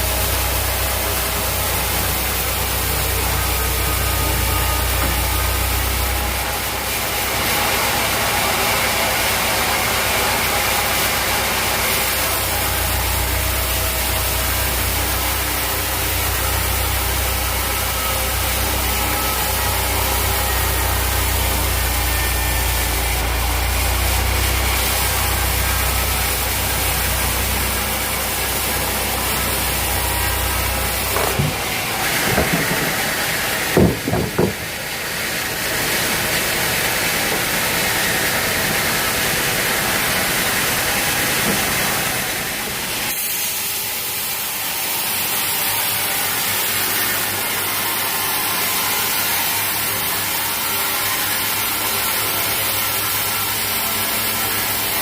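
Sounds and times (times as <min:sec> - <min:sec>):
low motor hum: 0:00.0 - 0:07.2, 0:12.6 - 0:43.1
knocks: 0:31.1 - 0:34.7.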